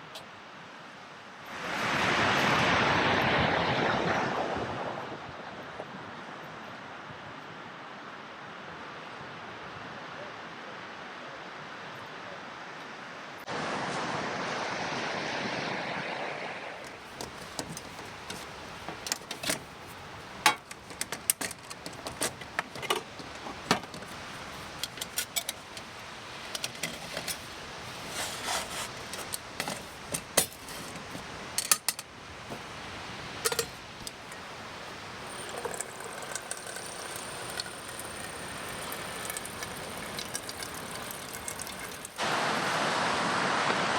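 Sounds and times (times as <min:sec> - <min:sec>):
loud rush of noise: 0:01.5 - 0:06.2, 0:13.5 - 0:16.9, 0:42.2 - 0:43.9
metallic clicks of gear handled: 0:20.5 - 0:25.9.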